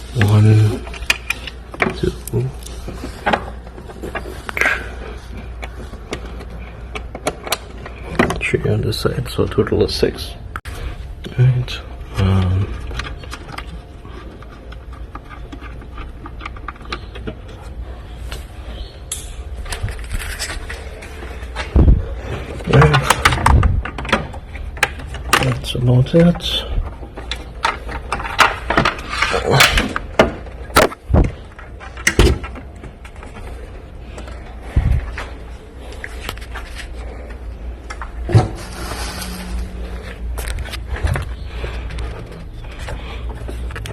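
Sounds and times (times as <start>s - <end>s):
steady low hum: 0.0s - 43.9s
tools knocking and clattering: 26.8s - 33.4s
rustling scrape: 38.4s - 43.7s.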